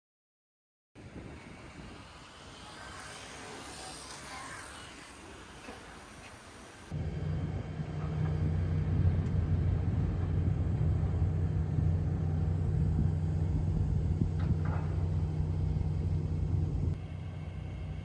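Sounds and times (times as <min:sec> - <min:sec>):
machinery rumble and hum: 0:06.9 - 0:18.0.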